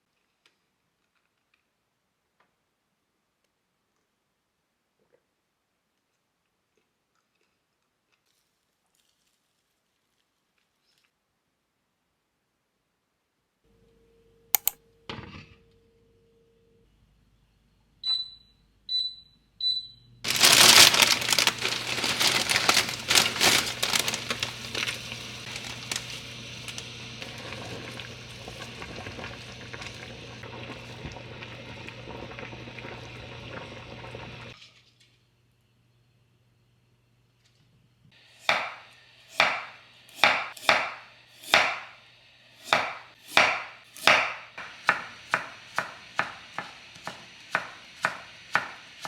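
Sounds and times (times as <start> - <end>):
appliance click: 14.6 - 14.8.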